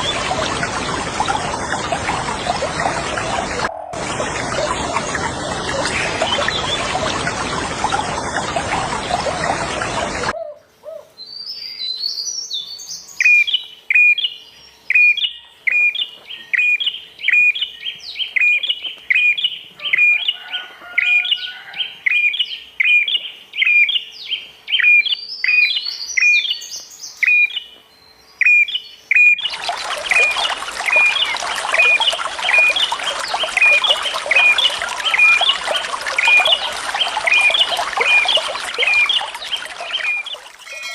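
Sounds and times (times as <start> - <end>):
rushing water: 0.0 - 10.3, 29.4 - 40.9
songbird chirping: 21.1 - 40.9.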